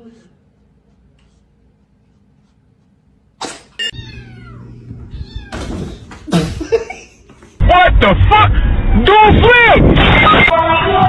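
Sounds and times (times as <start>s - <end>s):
cat meowing: 3.9s - 5.7s.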